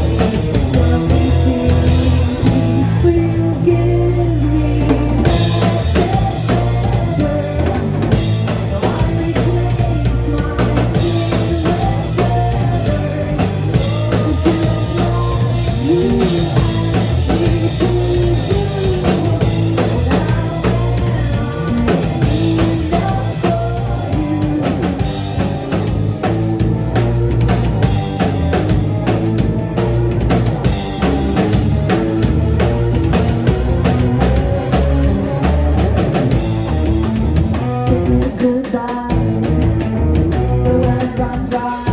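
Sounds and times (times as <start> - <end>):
drum kit beat: 0.0 - 41.9
guitar melody: 9.5 - 38.3.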